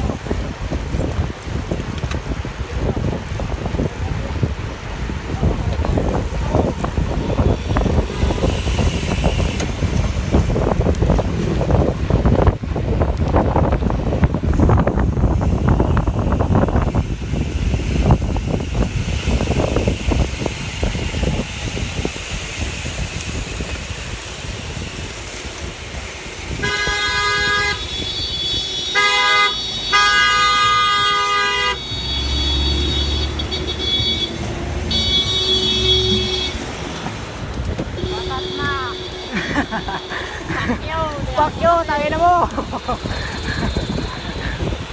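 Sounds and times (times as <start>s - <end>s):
wind buffeting microphone: 0.0s - 44.9s
vehicle horn honking: 26.6s - 36.7s, 38.0s - 40.5s.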